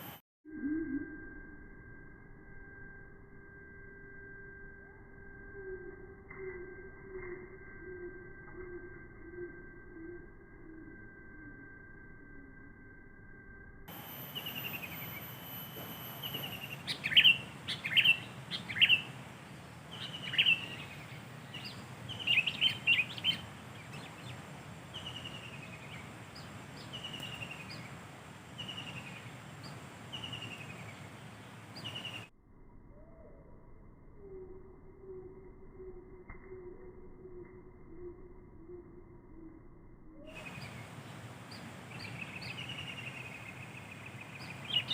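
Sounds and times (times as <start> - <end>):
birds chirping sharply: 14.0 - 32.3, 40.4 - 44.9
short falling bird whistle: 14.2 - 19.1.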